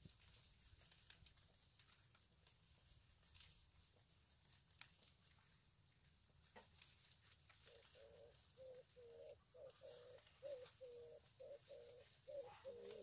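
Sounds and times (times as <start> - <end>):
bird cooing: 7.6 - 13.0.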